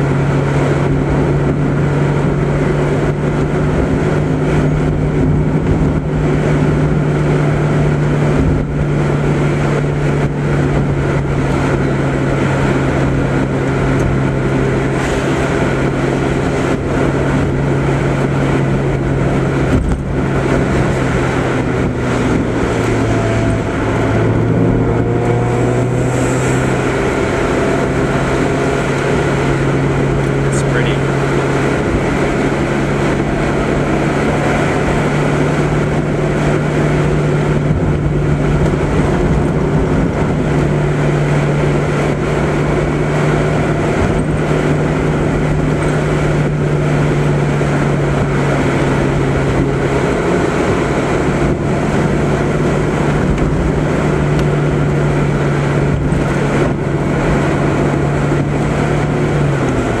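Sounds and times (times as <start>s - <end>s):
car engine droning: 0.0s - 60.0s
road noise: 0.0s - 60.0s.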